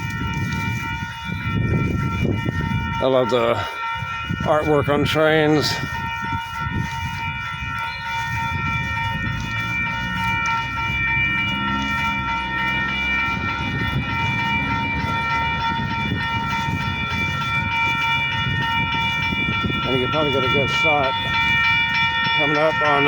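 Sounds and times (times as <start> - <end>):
high-pitched whine: 0.3 - 23.0
freight train rumbling: 8.4 - 23.0.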